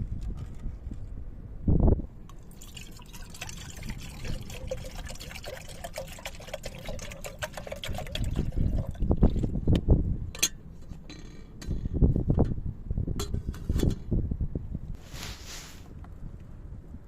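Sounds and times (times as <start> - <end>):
liquid pouring into container: 2.3 - 9.5.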